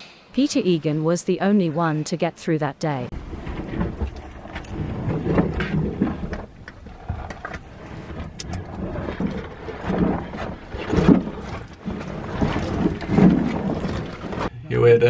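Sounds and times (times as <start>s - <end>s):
scraping and rustling: 3.1s - 14.5s.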